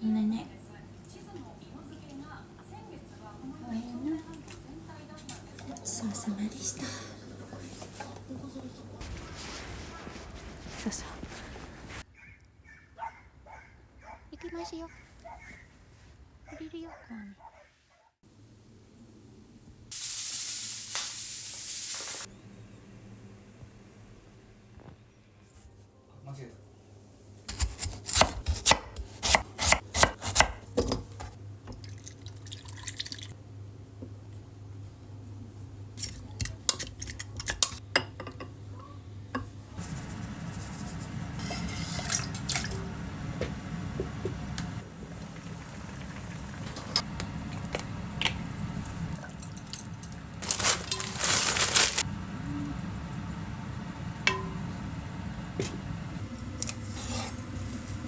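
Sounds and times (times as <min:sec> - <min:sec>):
tap water running: 0:19.9 - 0:22.3, 0:30.8 - 0:33.4, 0:40.7 - 0:52.2.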